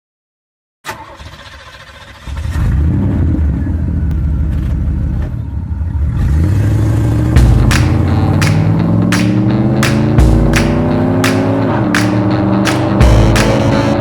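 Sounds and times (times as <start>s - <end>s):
car engine running: 4.2s - 14.0s.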